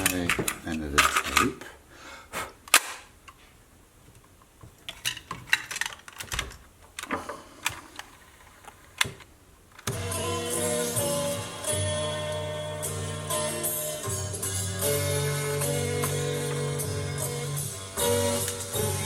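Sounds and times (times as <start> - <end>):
cassette door opening and shutting: 0.0 - 1.5
music playing from tape: 9.9 - 19.0.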